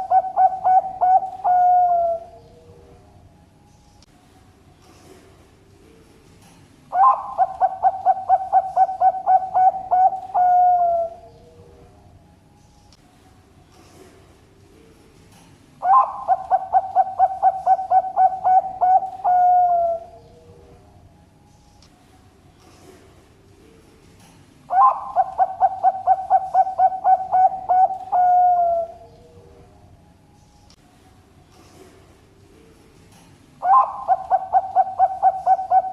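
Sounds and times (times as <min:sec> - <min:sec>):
dove cooing: 0:00.0 - 0:03.0, 0:06.9 - 0:11.9, 0:15.8 - 0:20.8, 0:24.7 - 0:29.6, 0:33.6 - 0:35.9.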